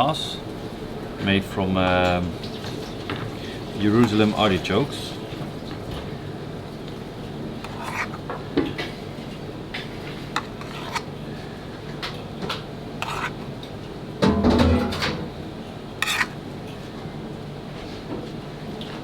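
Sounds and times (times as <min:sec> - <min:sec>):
utensils clinking against dishes: 0:14.2 - 0:15.3.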